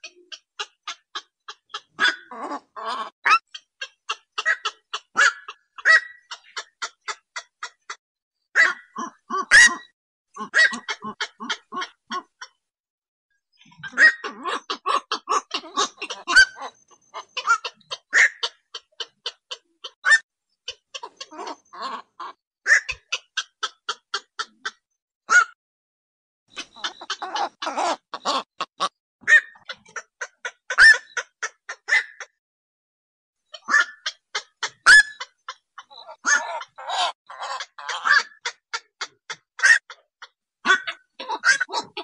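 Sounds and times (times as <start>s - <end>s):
heron croaking calls: 13.8s - 25.6s, 26.5s - 32.4s, 33.6s - 42.0s.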